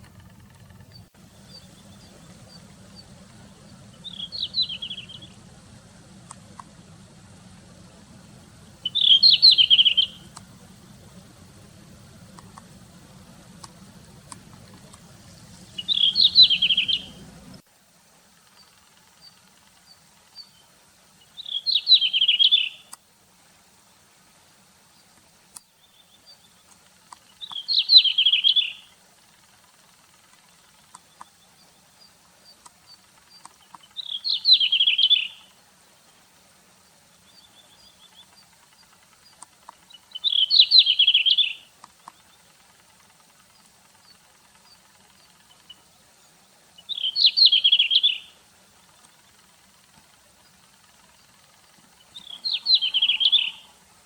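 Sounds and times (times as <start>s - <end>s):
bird singing warbled phrases: 0.0s - 5.6s, 8.5s - 11.6s, 12.2s - 17.6s, 18.6s - 23.0s, 25.6s - 29.0s, 30.0s - 35.6s, 37.1s - 42.6s, 43.2s - 53.8s
soft bird call notes: 0.1s - 5.5s, 8.6s - 10.5s, 14.8s - 17.6s, 21.4s - 23.0s, 32.5s - 35.6s, 39.9s - 42.5s, 46.8s - 48.4s, 51.9s - 53.8s.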